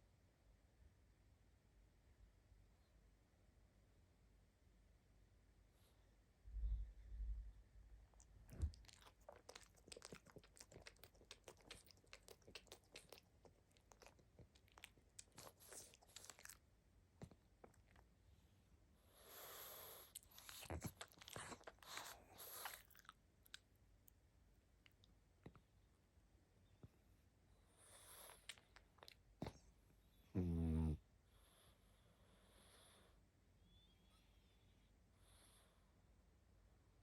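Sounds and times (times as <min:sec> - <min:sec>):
dog mouth clicks and smacks: 0:08.5 - 0:16.5.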